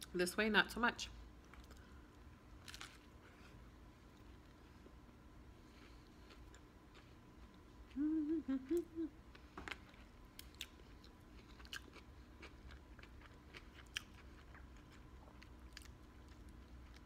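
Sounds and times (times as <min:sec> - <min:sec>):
person humming: 0:07.9 - 0:09.2
crunchy chewing: 0:09.3 - 0:17.0.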